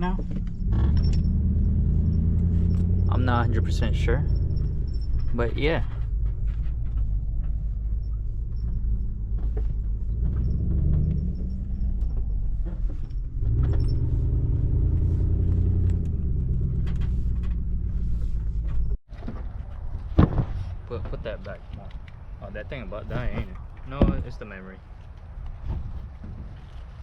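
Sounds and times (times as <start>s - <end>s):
car engine running: 0.0s - 19.0s
road rumble: 0.0s - 27.0s.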